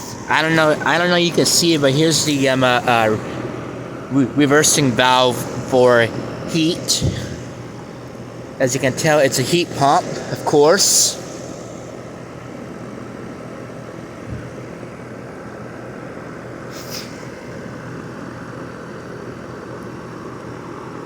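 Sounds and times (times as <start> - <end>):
heat pump whirring: 0.0 - 21.0
brief hiss: 16.7 - 17.4.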